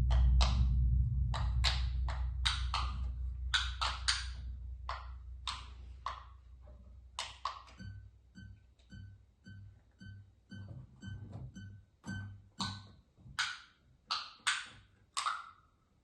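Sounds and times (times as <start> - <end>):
low electronic drone: 0.0 - 8.6
short high beeps with thuds: 7.8 - 12.4.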